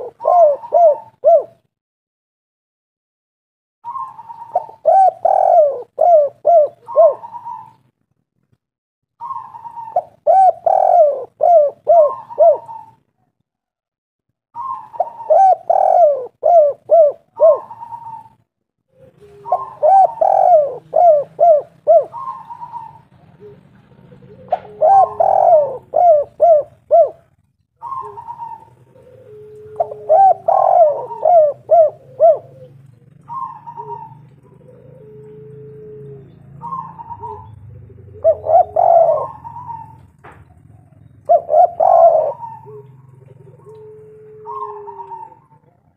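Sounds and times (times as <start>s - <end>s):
dove cooing: 0.0s - 1.7s, 3.8s - 7.9s, 9.2s - 13.7s, 14.6s - 45.9s
fainter lower-pitched bird calls: 0.0s - 1.7s, 3.8s - 7.9s, 9.2s - 13.7s, 14.6s - 45.9s.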